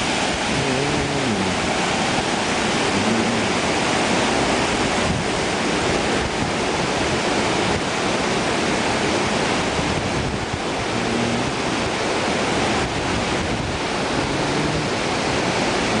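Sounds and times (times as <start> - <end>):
storm wind rushing: 0.0 - 8.0, 9.6 - 16.0
wind gusts buffeting microphone: 0.0 - 16.0.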